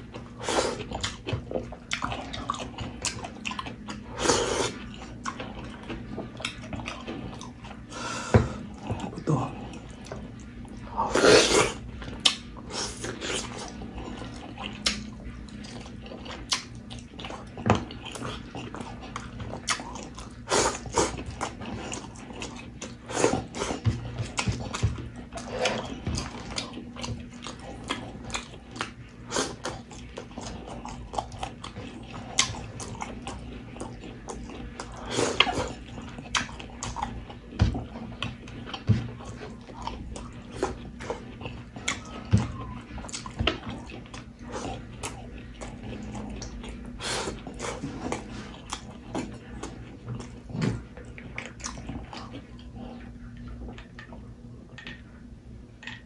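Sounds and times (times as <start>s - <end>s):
chewing and lip smacking: 0.0s - 7.9s, 11.5s - 55.2s.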